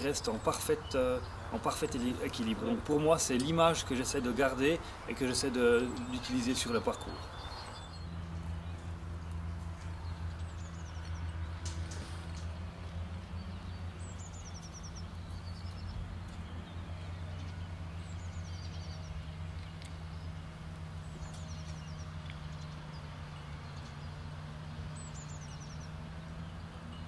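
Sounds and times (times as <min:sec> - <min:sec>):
songbird singing: 0:00.0 - 0:27.0.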